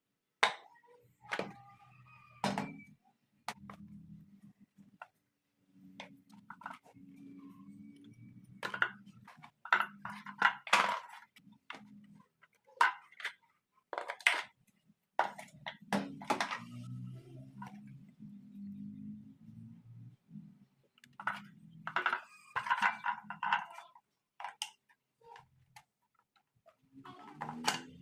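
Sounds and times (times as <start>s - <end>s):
tools and parts clinking: 8.4s - 14.6s, 21.1s - 24.9s, 27.1s - 28.0s.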